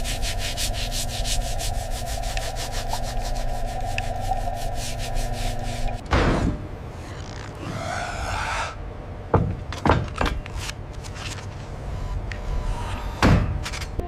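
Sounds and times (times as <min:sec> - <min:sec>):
sharp knocks and thuds: 0:09.3 - 0:10.4.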